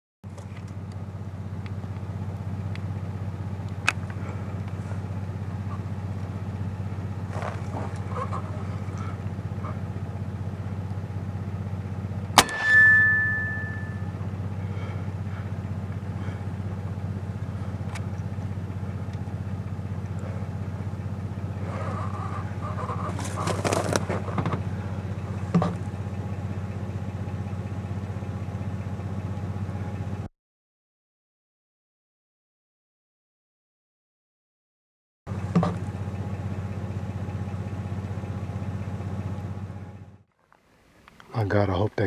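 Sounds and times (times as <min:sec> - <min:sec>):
truck engine idling: 0:00.2 - 0:30.3, 0:35.3 - 0:42.0
rustling: 0:07.2 - 0:09.2, 0:21.6 - 0:24.7
air rifle shot: 0:12.4 - 0:13.3
brief ringing tone: 0:12.4 - 0:14.3.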